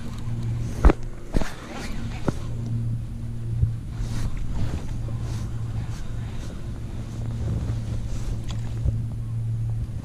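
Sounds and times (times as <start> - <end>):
steady low hum: 0.0 - 10.0
wind noise on microphone: 0.0 - 10.0.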